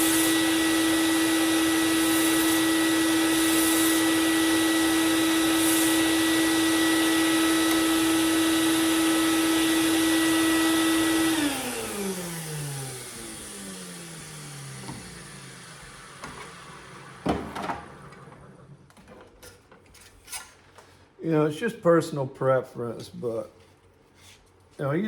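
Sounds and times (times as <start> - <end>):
belt sander motor humming: 0.0 - 17.2
motor spinning down: 0.0 - 17.3.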